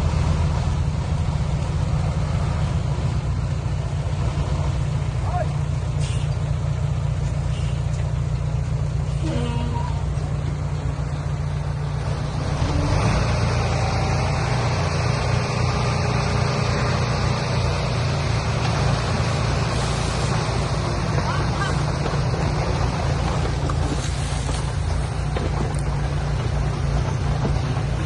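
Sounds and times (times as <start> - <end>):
truck engine rumbling: 0.0 - 28.0
broad rushing hiss: 19.2 - 21.0.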